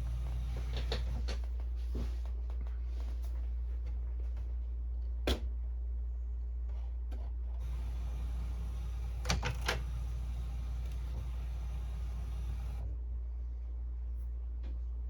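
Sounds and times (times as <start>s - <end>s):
printer running noise: 0.0s - 1.4s, 7.6s - 12.9s
low hum: 7.6s - 15.0s
printer clicks: 8.6s - 11.3s.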